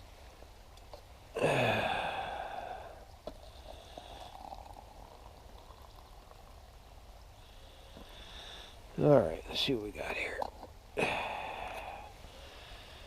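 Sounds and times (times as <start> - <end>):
faint trickle: 1.9 - 8.6
liquid pouring into a cup: 3.3 - 6.8.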